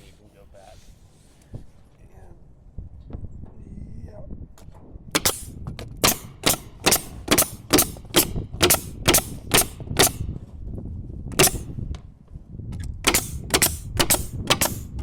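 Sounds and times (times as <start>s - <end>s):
nail gun shots: 5.1s - 10.3s, 11.3s - 11.8s, 12.8s - 15.0s.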